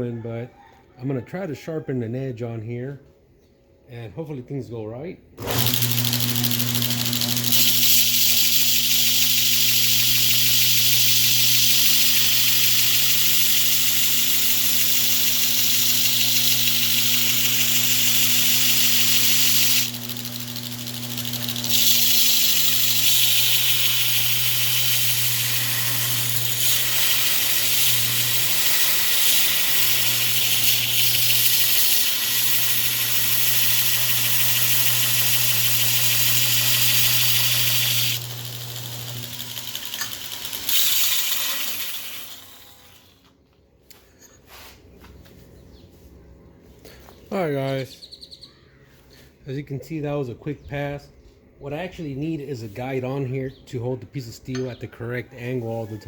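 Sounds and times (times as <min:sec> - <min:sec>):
steel grinding on belt: 0:05.4 - 0:43.2
belt grinder motor hum: 0:05.4 - 0:43.3.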